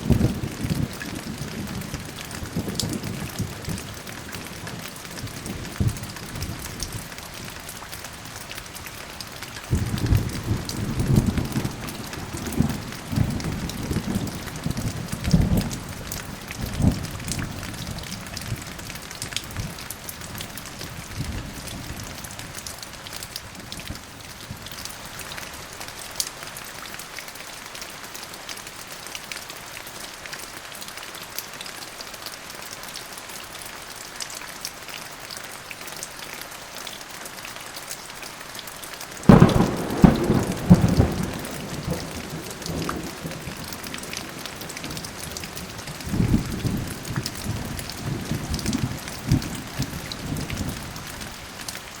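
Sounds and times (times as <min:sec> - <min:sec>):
steady rain falling: 0:00.0 - 0:52.0
thunder rumbling: 0:09.7 - 0:16.0, 0:39.3 - 0:50.8
loud thunderclap: 0:39.3 - 0:45.0.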